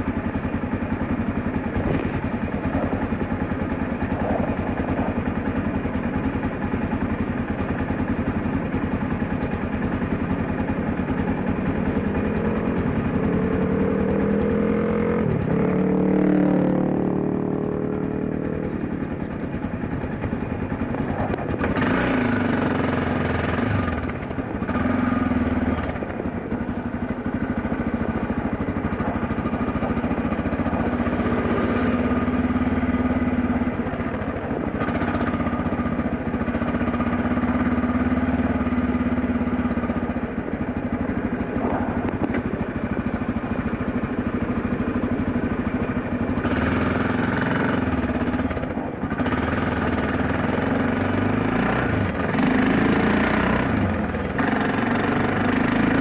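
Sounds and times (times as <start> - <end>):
dirt bike engine revving: 9.7 - 26.0, 45.9 - 56.0.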